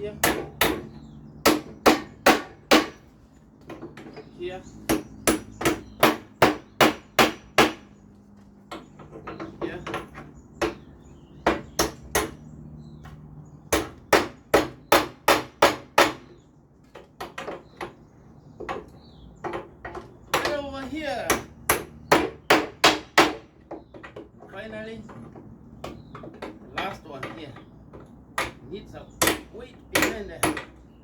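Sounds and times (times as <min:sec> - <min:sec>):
hammer striking nails: 0:00.2 - 0:03.1, 0:04.9 - 0:07.9, 0:08.7 - 0:12.4, 0:13.7 - 0:16.4, 0:18.6 - 0:20.6, 0:21.2 - 0:24.2, 0:25.8 - 0:28.6, 0:29.2 - 0:30.8.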